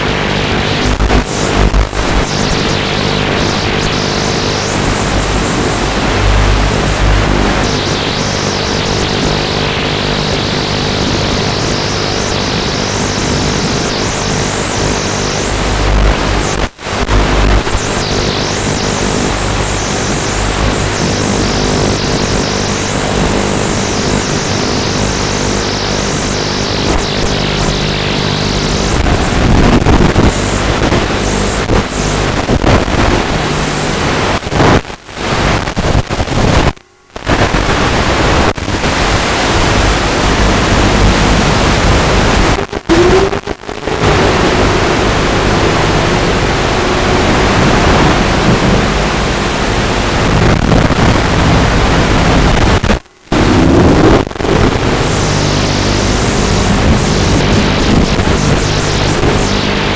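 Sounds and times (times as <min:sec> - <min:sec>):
quadcopter propellers and motor: 0:40.9 - 0:49.6.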